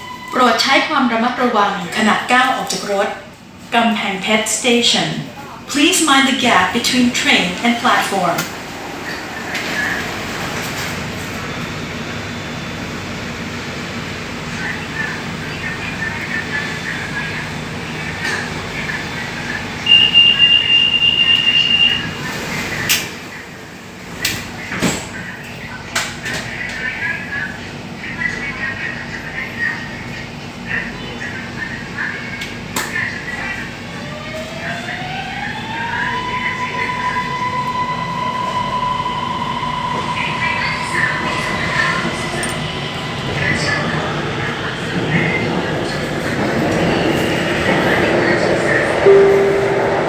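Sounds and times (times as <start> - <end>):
train car background hum: 0.0 - 50.0
high door warning beep: 19.9 - 22.1.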